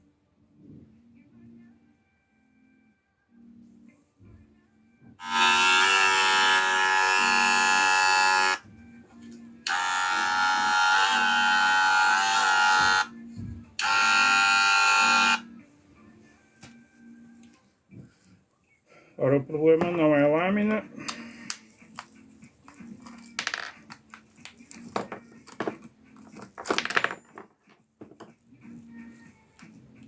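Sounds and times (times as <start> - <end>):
hair clipper buzzing: 5.2 - 8.6, 9.6 - 13.1, 13.8 - 15.4.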